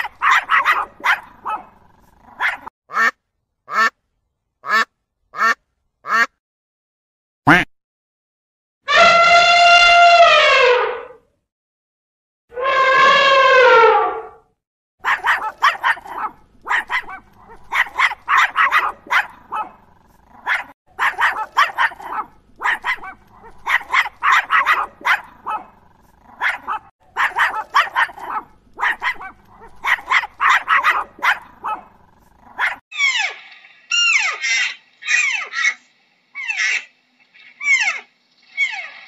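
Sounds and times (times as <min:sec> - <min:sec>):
dogs barking: 0:00.0 - 0:02.7, 0:15.0 - 0:38.9
high falling calls: 0:33.0 - 0:39.0.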